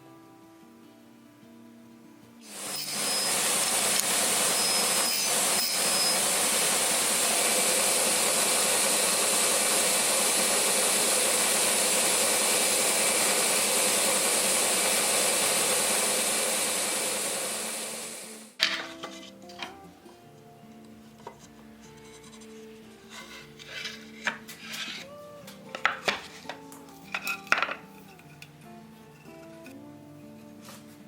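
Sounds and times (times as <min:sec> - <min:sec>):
power woodworking tool running: 0:02.4 - 0:18.6.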